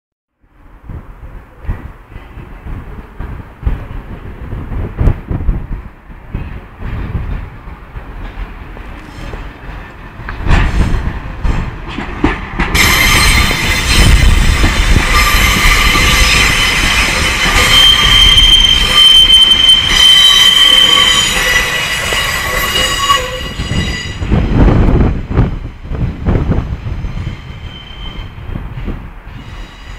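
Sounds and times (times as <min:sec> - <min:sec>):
train rumble: 0:00.4 - 0:29.9
train wheels squealing: 0:12.8 - 0:24.4, 0:26.6 - 0:28.6, 0:29.3 - 0:29.9.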